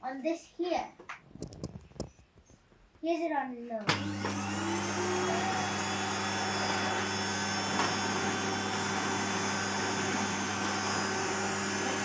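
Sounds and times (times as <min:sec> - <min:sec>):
vacuum cleaner running: 0:03.9 - 0:12.0.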